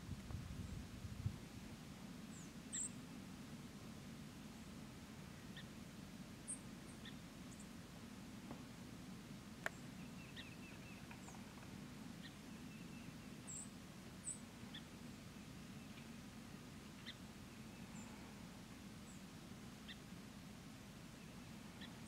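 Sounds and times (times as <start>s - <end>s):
faint low hum: 0.0s - 22.0s
faint bird chirps: 2.3s - 3.0s, 6.4s - 7.8s, 9.6s - 20.1s, 21.1s - 22.0s.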